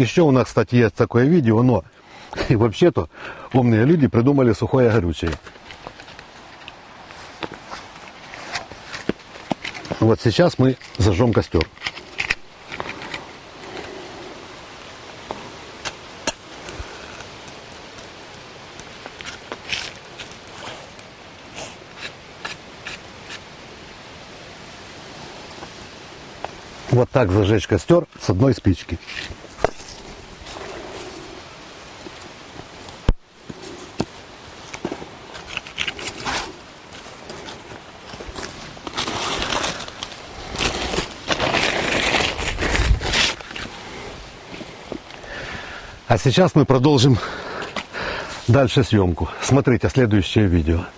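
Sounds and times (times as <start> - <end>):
fire hissing and crackling: 1.6 - 50.9
match striking: 15.2 - 23.5.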